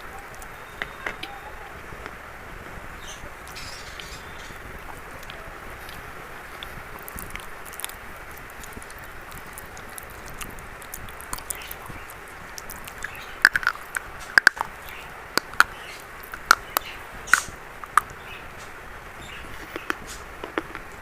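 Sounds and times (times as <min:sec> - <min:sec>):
steady hiss: 0:00.0 - 0:21.0
chalk crunching between teeth: 0:04.9 - 0:18.2.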